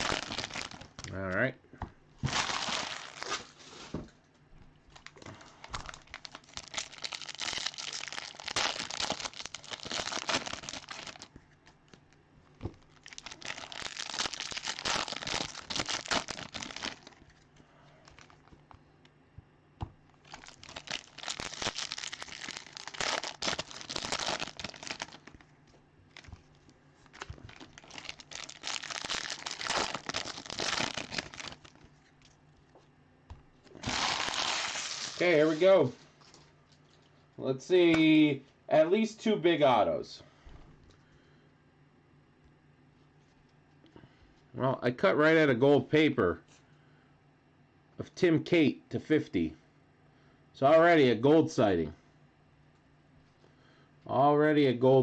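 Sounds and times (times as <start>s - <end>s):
plastic and foil wrappers crinkling: 0.0s - 1.2s, 2.2s - 4.0s, 4.9s - 18.8s, 20.1s - 32.8s, 33.6s - 37.2s.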